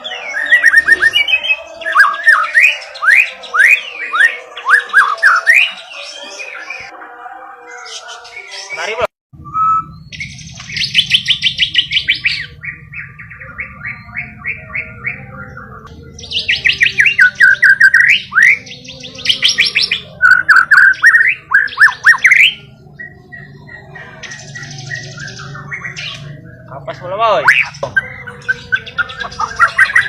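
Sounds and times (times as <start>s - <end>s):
loud whistled bird phrases: 0.0s - 6.9s, 7.7s - 26.4s, 27.3s - 30.0s
bird trilling: 9.6s - 30.0s.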